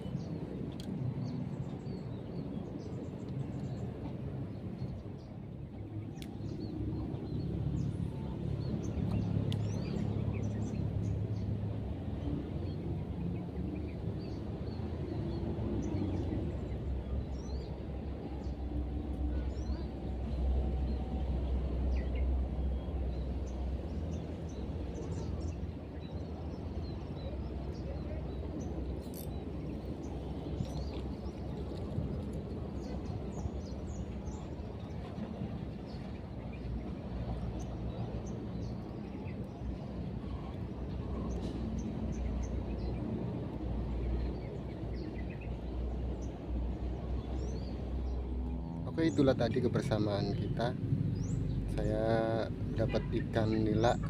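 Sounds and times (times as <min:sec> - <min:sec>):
small birds chirping: 0:24.2 - 0:54.0.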